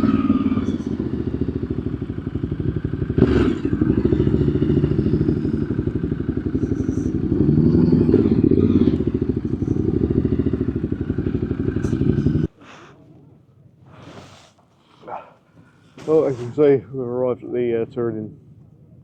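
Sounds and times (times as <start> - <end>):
motorcycle engine at low revs: 0.0 - 12.6.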